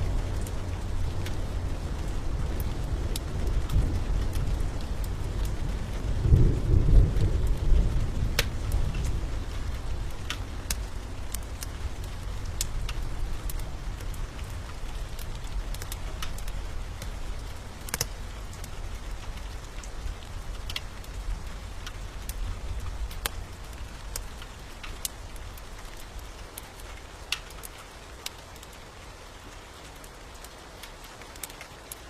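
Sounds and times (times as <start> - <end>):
thunder rumbling: 0.0 - 24.7
steady rain: 0.0 - 32.0
wood fire crackling: 0.0 - 32.0.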